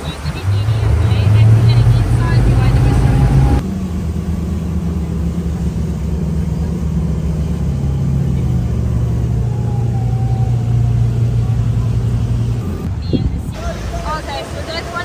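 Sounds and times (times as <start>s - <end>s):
speedboat engine drone: 0.0s - 15.0s.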